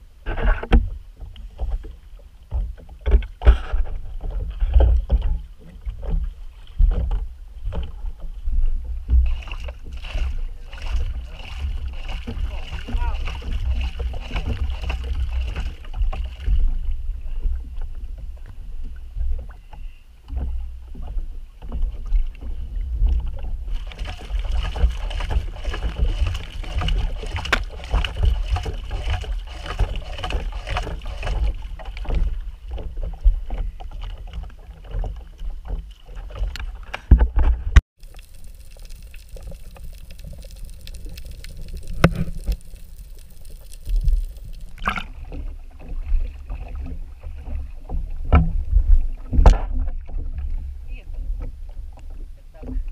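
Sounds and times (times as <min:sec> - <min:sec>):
water slapping against boat hull: 0:00.3 - 0:52.9
muffled underwater hiss: 0:38.0 - 0:44.9.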